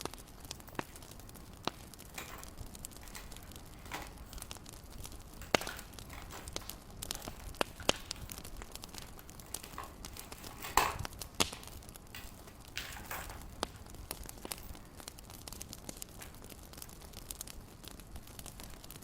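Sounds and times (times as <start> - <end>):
wood fire crackling and popping: 0.0 - 19.0.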